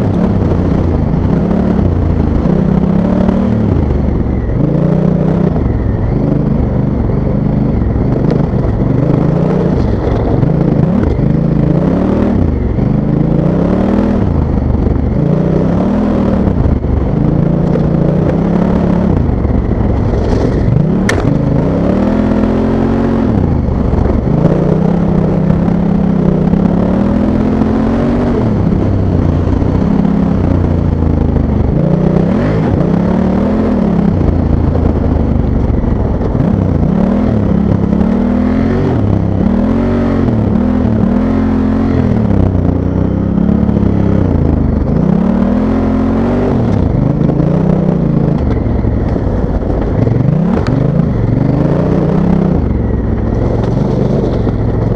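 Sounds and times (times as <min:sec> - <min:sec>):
motorcycle engine revving: 0:00.0 - 0:54.9
sharp click: 0:21.0 - 0:21.8.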